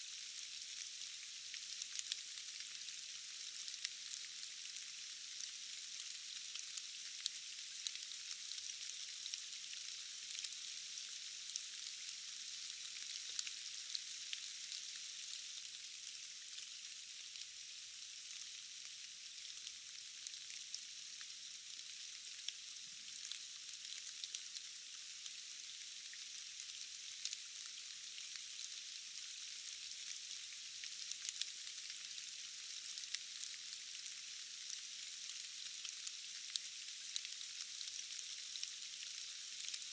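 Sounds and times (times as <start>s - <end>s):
rain falling in forest: 0.0s - 39.9s.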